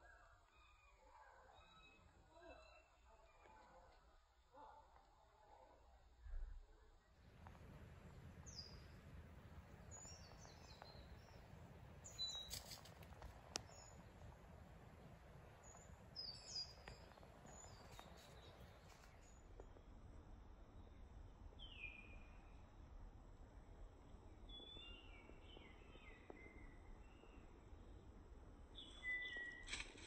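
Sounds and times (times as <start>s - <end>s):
faint bird chirps: 0.0s - 4.8s, 6.3s - 14.3s
low steady rumble: 7.2s - 21.5s.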